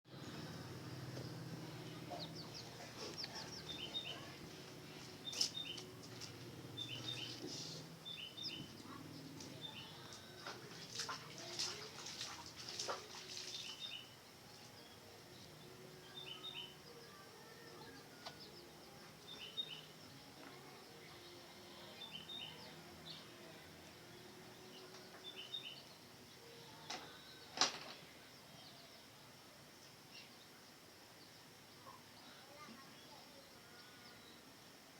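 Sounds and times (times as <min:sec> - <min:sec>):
small birds chirping: 0:00.1 - 0:29.2
faint low hum: 0:00.1 - 0:34.9
small bird chirping: 0:00.2 - 0:05.9.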